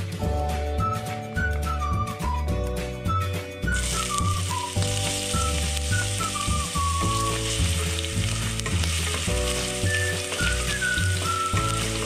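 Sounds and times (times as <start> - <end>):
ginger sizzling in hot oil: 3.7 - 12.0
chopsticks stirring in a pot: 3.8 - 12.0.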